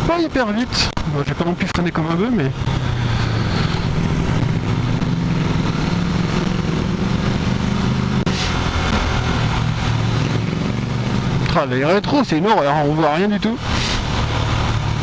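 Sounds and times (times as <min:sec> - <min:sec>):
road noise: 0:00.0 - 0:15.0
motorcycle engine running: 0:01.5 - 0:15.0
wind rush: 0:02.1 - 0:11.4.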